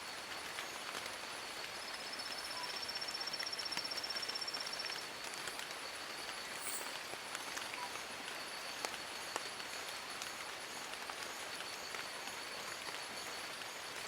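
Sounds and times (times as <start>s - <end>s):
rain falling on leaves: 0.0s - 14.0s.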